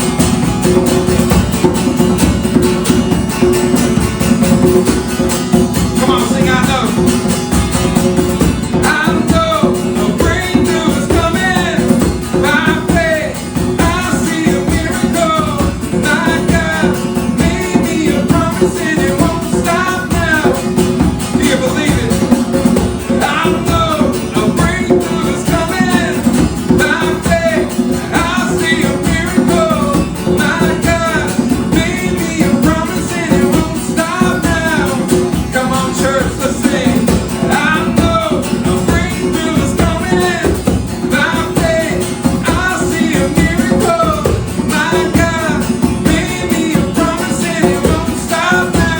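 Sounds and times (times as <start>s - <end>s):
acoustic band with guitar: 0.0s - 48.9s
person singing: 8.1s - 48.9s.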